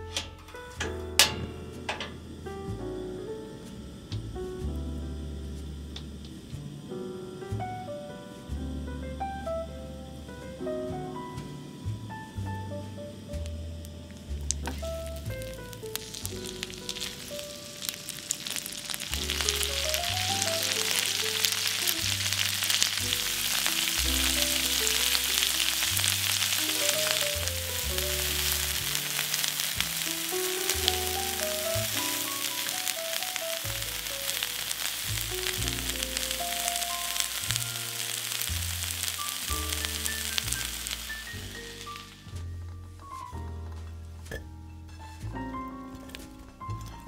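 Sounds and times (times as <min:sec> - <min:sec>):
background music: 0:00.0 - 0:47.0
cauliflower sizzling in butter: 0:14.2 - 0:42.4
spatula turning food: 0:14.6 - 0:41.1.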